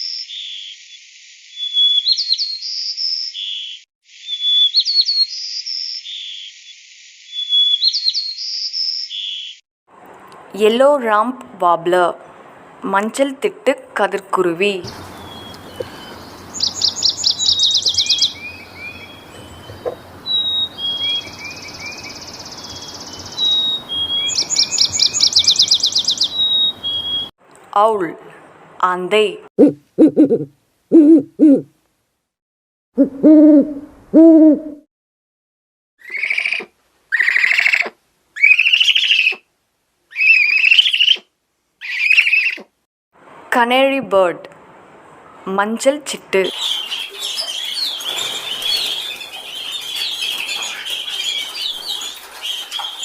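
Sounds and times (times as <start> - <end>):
bird chirps: 0.0 - 9.6, 14.8 - 27.3, 46.5 - 53.0
faint bird trill: 1.6 - 6.5, 7.3 - 9.6, 14.9 - 27.3, 46.5 - 53.0
warbler singing high notes: 14.8 - 27.3, 46.4 - 53.0.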